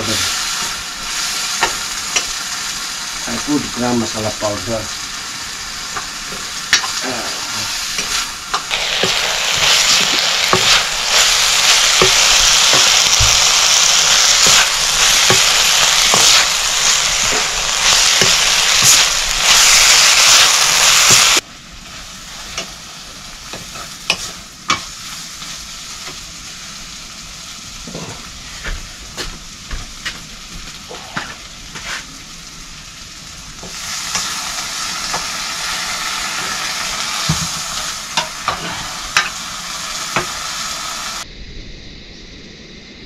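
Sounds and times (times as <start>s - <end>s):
potatoes sizzling in oil: 0.0s - 41.3s
spoon stirring and scraping pan: 7.9s - 21.4s, 23.5s - 25.0s.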